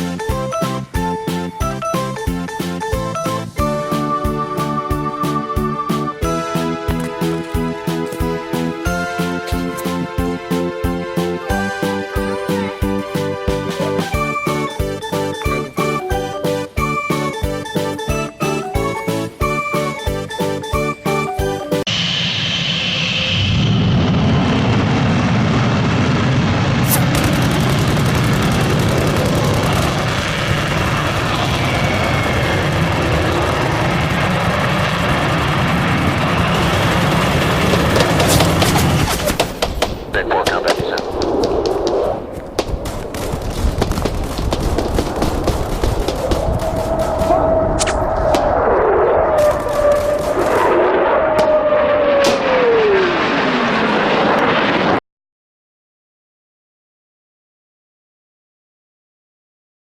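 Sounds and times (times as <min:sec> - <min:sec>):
aeroplane engine roar flyby: 0:21.9 - 0:55.0
wind buffeting microphone: 0:27.4 - 0:51.8.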